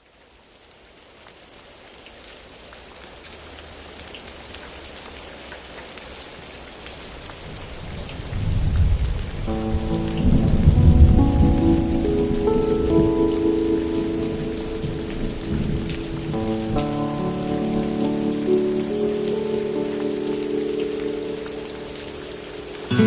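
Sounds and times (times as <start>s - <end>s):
steady rain: 0.0s - 23.0s
deep rumble of thunder: 7.8s - 13.2s, 14.3s - 17.0s
held music chords: 9.5s - 23.0s.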